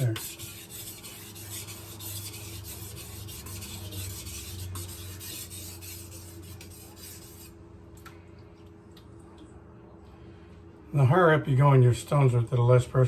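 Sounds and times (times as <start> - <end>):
knife scraping on whetstone: 0.0 - 7.5.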